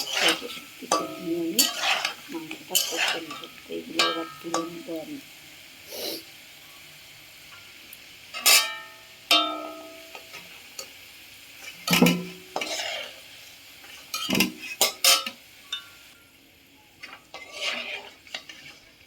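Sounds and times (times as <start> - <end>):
metal spatula scraping metal pan: 0.0 - 5.1, 8.3 - 10.9, 11.5 - 16.0, 16.9 - 19.0
oil sizzling: 0.0 - 19.0.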